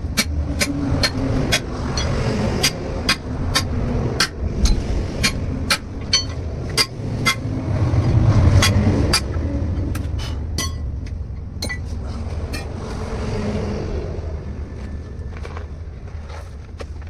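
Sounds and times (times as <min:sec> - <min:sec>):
steel tools clinking on wheel rim: 0:00.0 - 0:07.5, 0:08.6 - 0:12.8
low steady rumble: 0:00.0 - 0:17.0.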